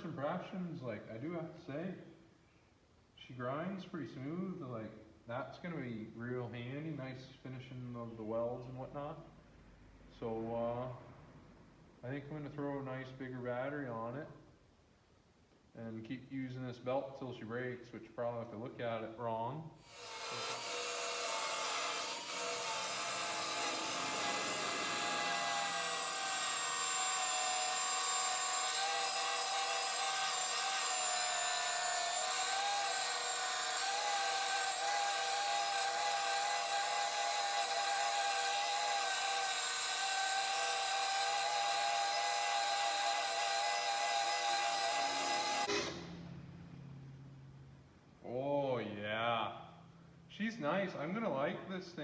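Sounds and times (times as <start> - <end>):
belt sander grinding metal: 19.8 - 46.1.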